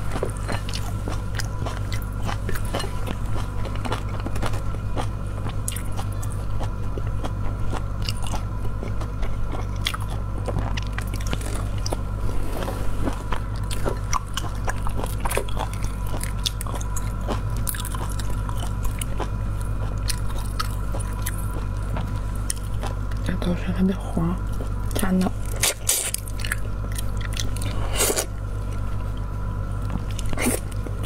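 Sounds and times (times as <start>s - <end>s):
biting and chewing: 0.0s - 23.4s, 24.4s - 31.0s
steady low hum: 0.0s - 31.0s.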